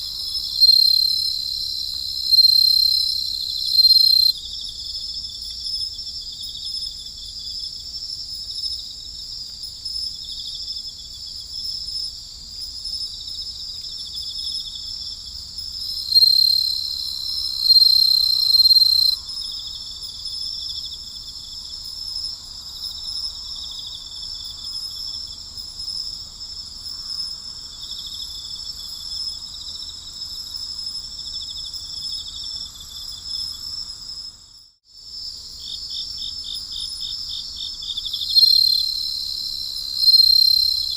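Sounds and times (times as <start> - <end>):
crickets chorus trilling: 0.0 - 40.9
single-pitched cricket trill: 0.0 - 40.9.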